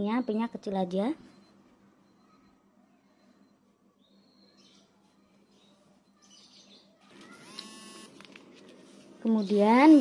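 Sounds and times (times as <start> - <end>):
faint bird chirps: 0.0 - 7.9.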